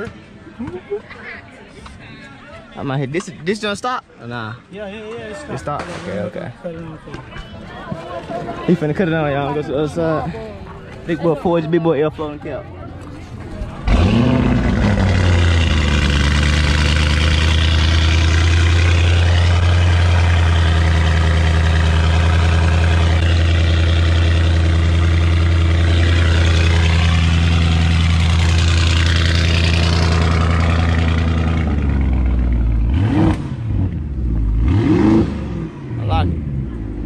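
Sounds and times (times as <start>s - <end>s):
car engine idling: 13.8s - 34.6s
engine revving blips: 13.8s - 37.0s.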